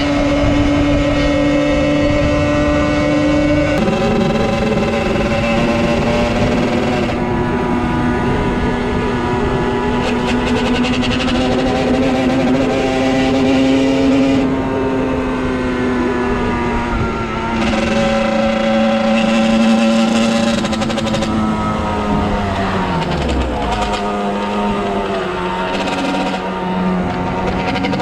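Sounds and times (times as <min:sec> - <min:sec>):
motorcycle engine at high revs: 0:00.0 - 0:28.0.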